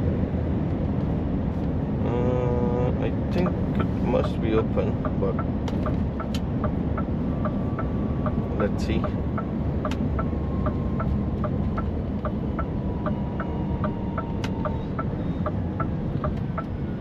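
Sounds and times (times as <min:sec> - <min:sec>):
diesel engine idling: 0:01.8 - 0:17.0
indicator ticking: 0:03.3 - 0:16.7.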